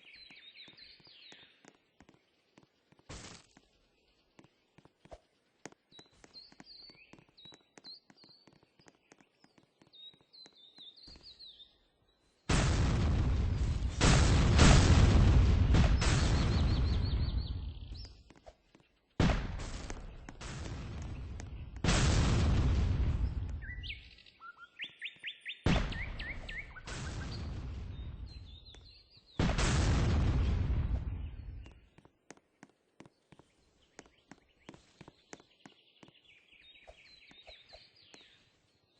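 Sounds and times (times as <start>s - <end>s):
bird chirping: 0.0s - 2.9s, 3.6s - 12.5s, 15.9s - 19.2s, 23.1s - 29.4s, 31.0s - 38.9s.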